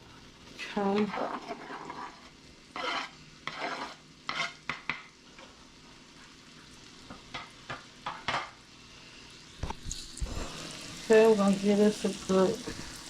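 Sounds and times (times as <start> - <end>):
onions sizzling in butter: 0.0 - 13.0
utensil scraping a pan: 0.8 - 5.0.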